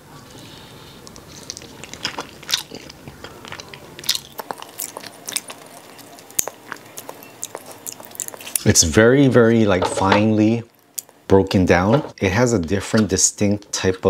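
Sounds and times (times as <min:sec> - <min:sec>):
person chewing wetly: 0:00.9 - 0:08.7, 0:10.7 - 0:11.2.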